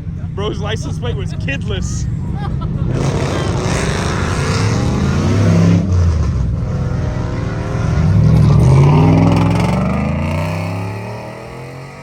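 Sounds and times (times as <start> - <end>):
car engine revving hard: 2.8 - 12.0.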